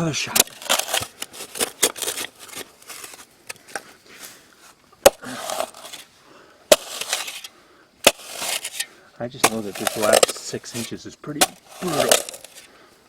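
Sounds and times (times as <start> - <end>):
shovel blade striking rock: 0.3 - 2.0, 5.0 - 6.1, 6.7 - 12.7
shovel scraping into shale: 0.3 - 3.2, 5.0 - 6.1, 6.7 - 12.7.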